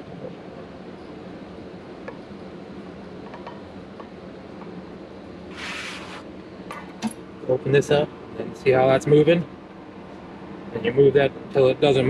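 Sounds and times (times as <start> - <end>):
short hiss: 5.5 - 6.3.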